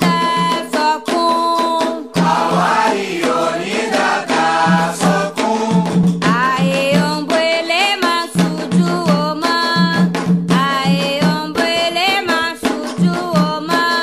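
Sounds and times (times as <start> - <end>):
steady drum beat: 0.0 - 14.0
voices singing a chant: 2.2 - 7.1.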